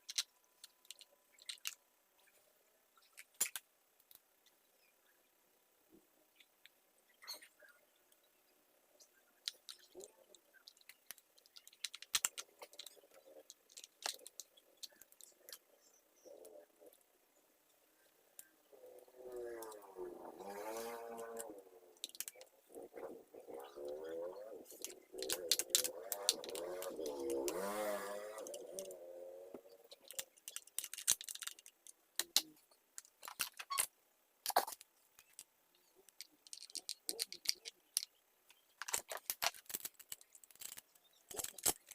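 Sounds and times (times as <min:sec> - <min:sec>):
small hard parts clattering: 0:00.0 - 0:01.8, 0:09.4 - 0:17.0, 0:24.7 - 0:41.9.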